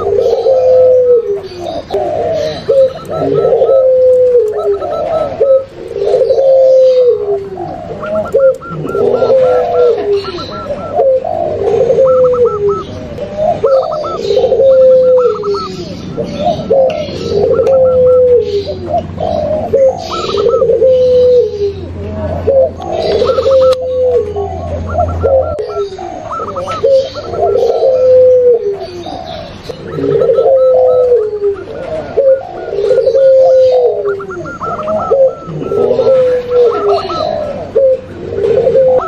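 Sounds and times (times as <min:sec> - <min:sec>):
deep dove coos: 0:00.0 - 0:39.0
high stuttering bird trill: 0:01.6 - 0:07.2, 0:07.8 - 0:18.5, 0:22.6 - 0:28.4, 0:29.0 - 0:37.6.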